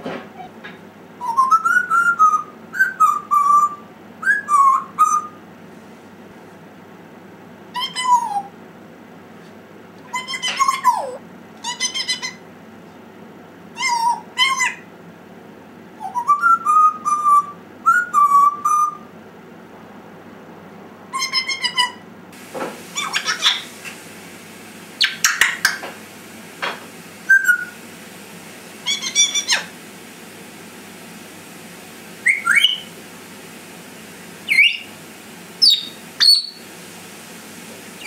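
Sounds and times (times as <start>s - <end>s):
parrot calling: 1.2s - 5.4s, 7.7s - 8.5s, 10.0s - 12.4s, 13.8s - 14.9s, 21.1s - 22.0s, 22.9s - 24.1s, 25.0s - 25.9s, 27.2s - 27.8s, 28.7s - 29.8s, 32.2s - 33.0s, 34.4s - 35.0s, 35.6s - 36.7s
parrot whistling: 1.2s - 5.4s, 16.0s - 19.0s, 21.2s - 22.0s, 22.9s - 24.0s, 25.0s - 25.8s, 27.2s - 27.8s, 28.8s - 29.8s, 32.2s - 33.0s, 34.4s - 35.0s, 35.6s - 36.7s.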